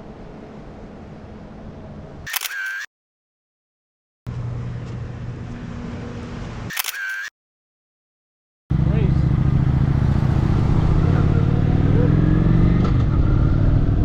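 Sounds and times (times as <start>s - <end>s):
outdoor background noise: 0.0s - 2.9s, 4.3s - 7.3s, 8.7s - 14.0s
camera shutter click: 2.3s - 2.9s, 6.7s - 7.3s.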